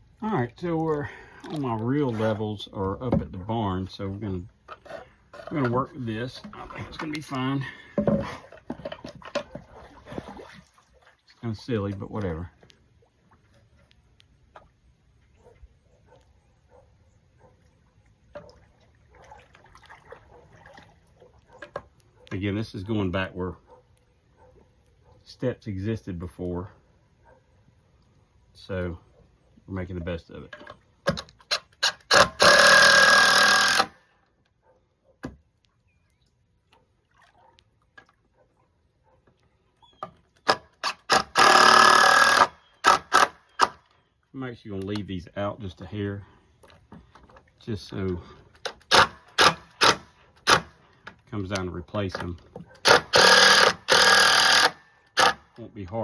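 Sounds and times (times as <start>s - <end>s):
faint water splashes and drips: 0.0s - 31.9s, 34.0s - 40.9s, 43.5s - 49.4s
cordless screw gun driving screws: 31.5s - 34.0s, 40.4s - 43.8s, 48.8s - 50.7s, 52.8s - 55.4s.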